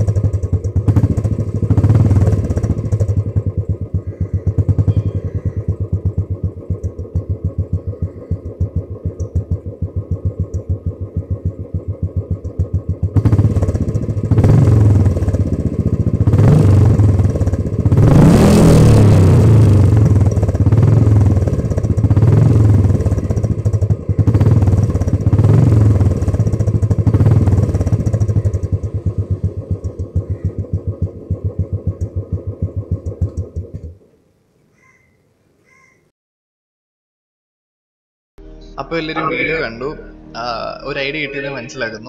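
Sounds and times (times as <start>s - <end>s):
motorcycle engine idling and revving: 0.0s - 34.2s.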